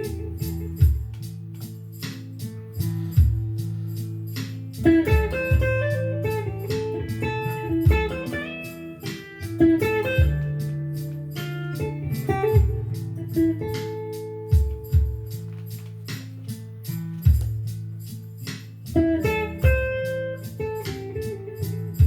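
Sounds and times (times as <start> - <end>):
blues guitar lead: 0.0 - 22.0
steady beat of sharp hits: 4.5 - 7.3, 9.1 - 10.8, 11.8 - 13.0, 14.5 - 16.4.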